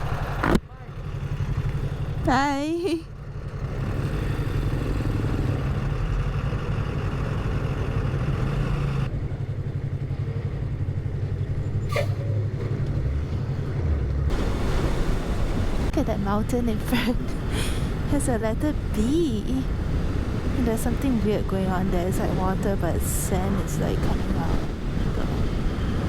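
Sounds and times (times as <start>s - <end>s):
motorcycle engine running: 0.0s - 14.5s.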